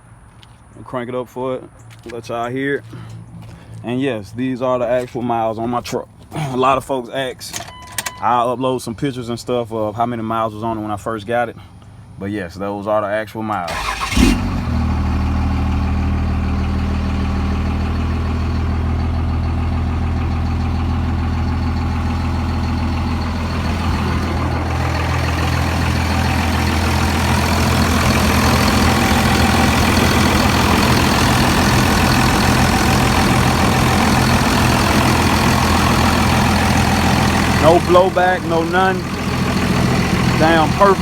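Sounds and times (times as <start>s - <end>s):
diesel truck engine idling: 13.7s - 41.0s.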